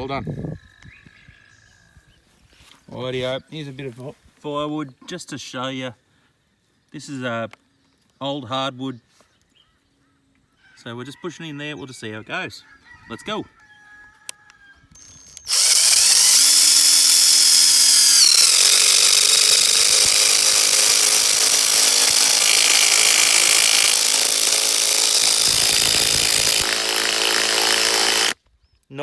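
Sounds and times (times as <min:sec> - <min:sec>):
impact driver driving screw: 0:15.0 - 0:28.4.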